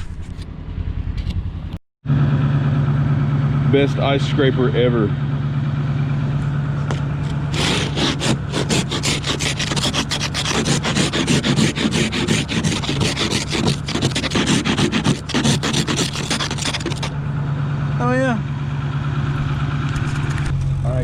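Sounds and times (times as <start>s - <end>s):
ice scraper rasping glass: 7.2s - 17.1s.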